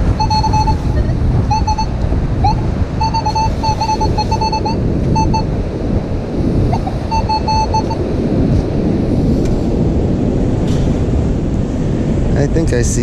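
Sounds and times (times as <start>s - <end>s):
metal detector beeping: 0.0s - 5.6s, 6.7s - 8.1s
wind on microphone: 0.0s - 13.0s.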